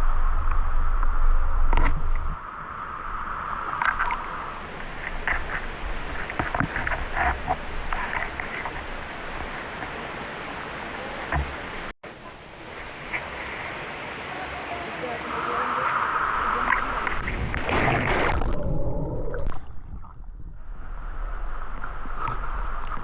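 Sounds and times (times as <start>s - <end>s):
waterfall rushing: 7.8s - 18.6s.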